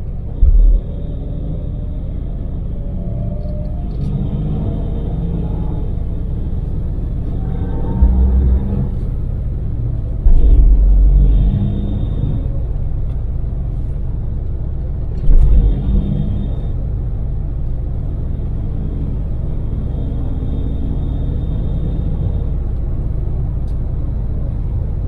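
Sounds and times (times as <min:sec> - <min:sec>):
low booms: 0:00.0 - 0:04.6, 0:07.4 - 0:13.6
engine and road rumble in cabin: 0:00.0 - 0:25.0.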